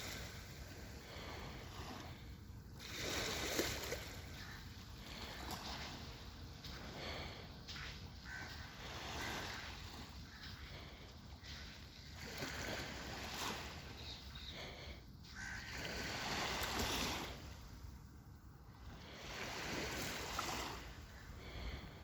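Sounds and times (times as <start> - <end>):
birds calling: 3.9 - 16.0.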